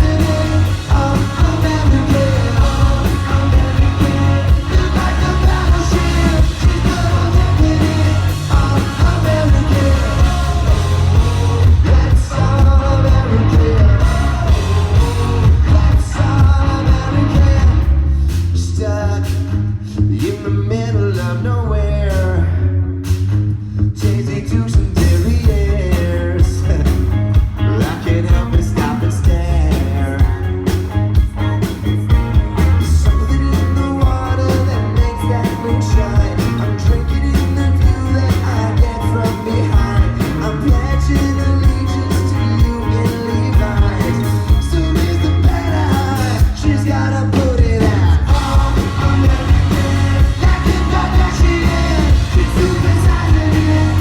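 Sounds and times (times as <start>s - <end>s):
heavy bass beat: 0.0s - 18.8s, 47.4s - 54.0s
live pop-rock band playing: 0.0s - 21.4s, 22.0s - 54.0s
man singing lead: 0.0s - 22.7s, 24.0s - 54.0s.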